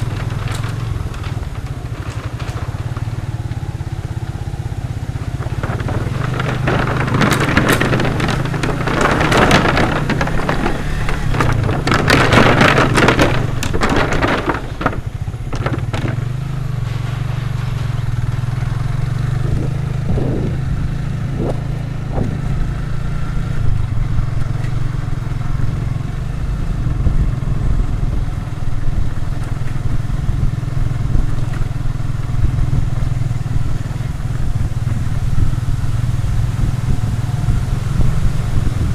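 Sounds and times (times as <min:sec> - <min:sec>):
loud crackling and clattering: 0:00.0 - 0:36.6
small motorcycle engine running: 0:00.0 - 0:38.9.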